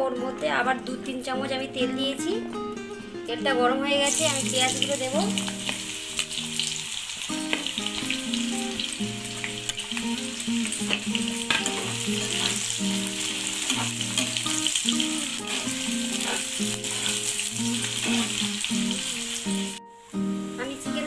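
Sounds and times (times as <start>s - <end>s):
onions sizzling in a pan: 4.0s - 21.0s
spatula scraping a pan: 10.8s - 19.2s.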